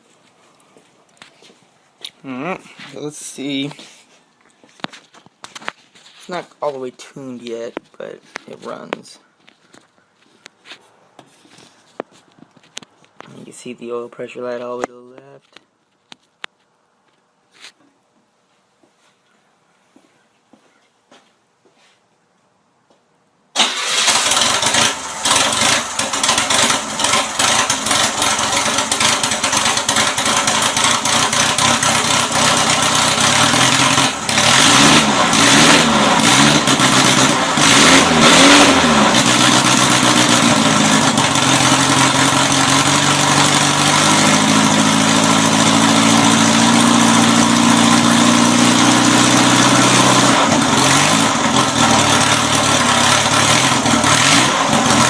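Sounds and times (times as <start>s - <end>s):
engine starting and revving: 23.6s - 55.0s.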